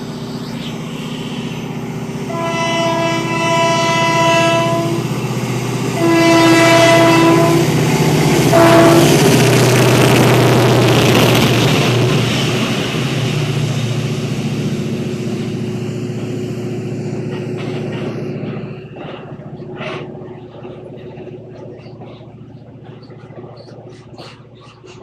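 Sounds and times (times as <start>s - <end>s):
train rushing past: 0.0s - 25.0s
train horn blasts: 2.3s - 5.2s, 5.9s - 10.0s.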